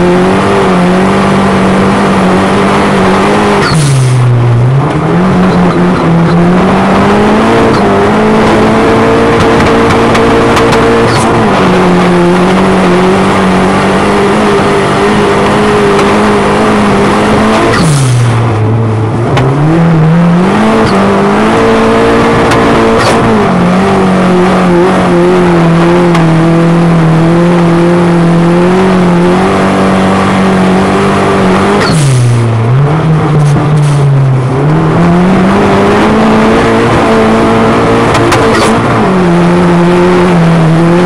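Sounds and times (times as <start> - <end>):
race car engine revving: 0.0 - 41.0.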